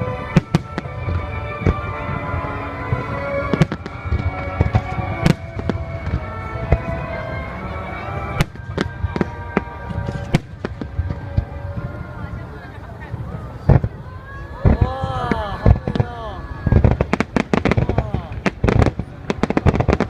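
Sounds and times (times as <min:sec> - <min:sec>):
music playing: 0:00.0 - 0:13.8
fireworks bangs: 0:00.0 - 0:20.0.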